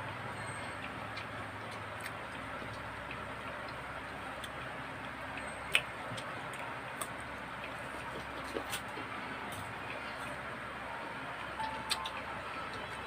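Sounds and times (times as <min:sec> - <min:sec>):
mouth clicks and smacks chewing: 0:00.0 - 0:10.0.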